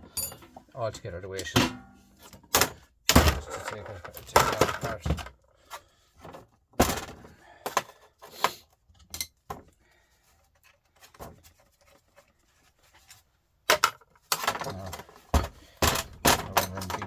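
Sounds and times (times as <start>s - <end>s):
metal tools clattering: 0.0s - 0.7s, 1.3s - 5.2s, 9.0s - 9.5s, 13.7s - 17.0s.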